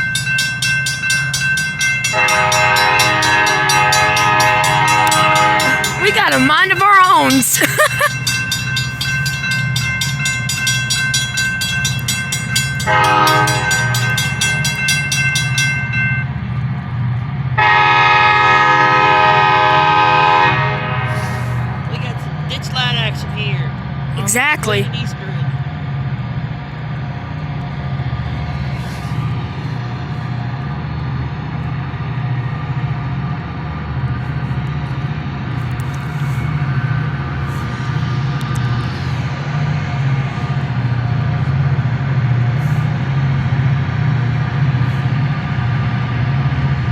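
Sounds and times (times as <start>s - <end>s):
rapid metallic ringing: 0.0s - 6.2s, 8.1s - 16.3s
diesel locomotive engine rumble: 0.0s - 46.9s
train horn blasts: 2.1s - 6.1s, 12.8s - 14.6s, 17.6s - 21.9s.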